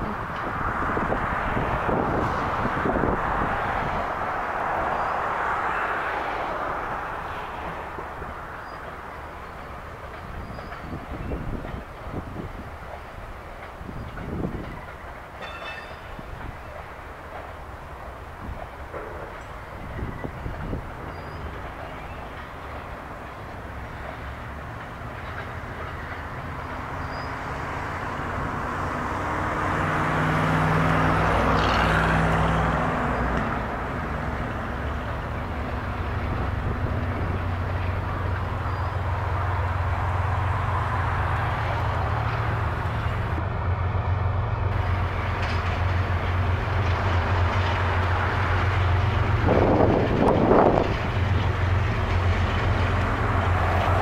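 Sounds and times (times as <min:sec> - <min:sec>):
freight train wheels on rails: 0:00.0 - 0:54.0.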